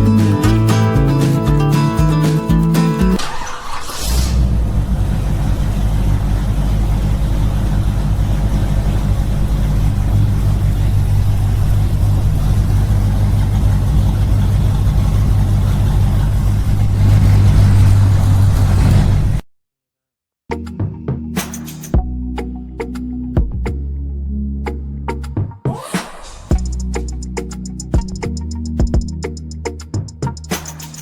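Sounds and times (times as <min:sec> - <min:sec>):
small engine droning: 0:03.1 - 0:19.4.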